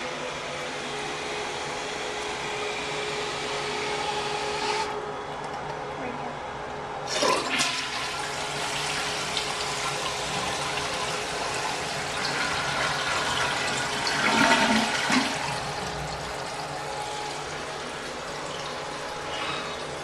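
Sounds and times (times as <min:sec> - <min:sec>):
toilet flushing: 0:07.0 - 0:20.0.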